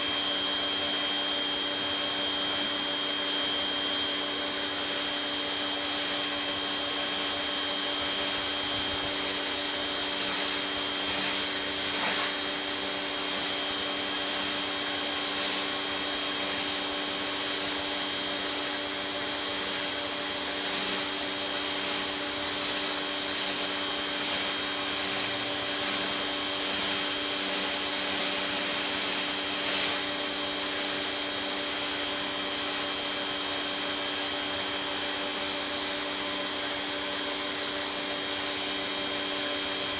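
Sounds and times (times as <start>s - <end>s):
pressure washer motor whine: 0.0s - 39.9s
water spray hissing: 9.0s - 12.8s.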